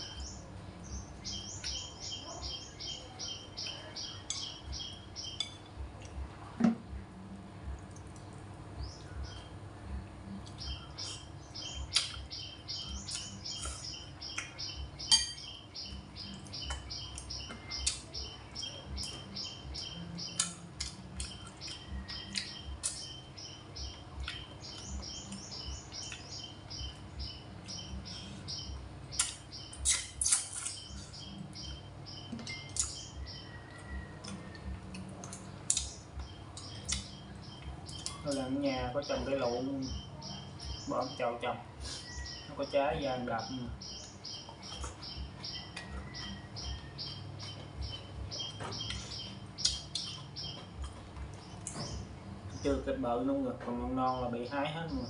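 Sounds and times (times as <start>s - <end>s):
chewing and mouth clicks: 7.8s - 8.4s, 11.9s - 12.3s, 20.4s - 23.1s, 29.2s - 31.8s, 32.4s - 38.3s, 44.0s - 51.8s
utensil clinking against bowl: 15.1s - 15.5s.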